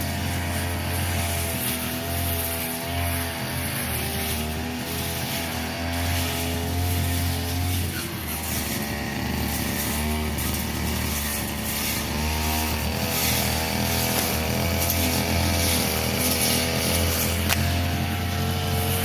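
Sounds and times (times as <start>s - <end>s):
brush cutter engine cutting grass: 0.0s - 19.0s.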